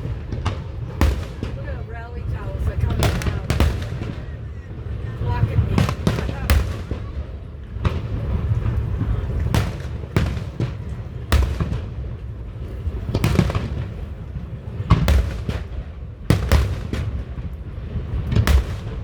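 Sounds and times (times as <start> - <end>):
continuous low rumble: 0.0 - 19.0
fireworks booming: 0.0 - 19.0.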